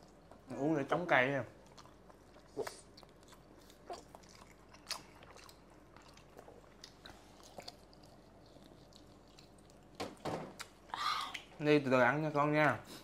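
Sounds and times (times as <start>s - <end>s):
people chewing: 1.5s - 11.6s.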